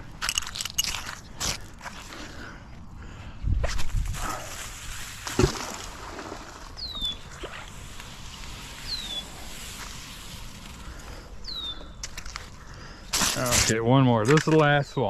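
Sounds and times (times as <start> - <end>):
outdoor background hiss: 1.7 - 15.0
bird whistling: 6.8 - 7.3, 8.8 - 9.3, 11.4 - 11.9.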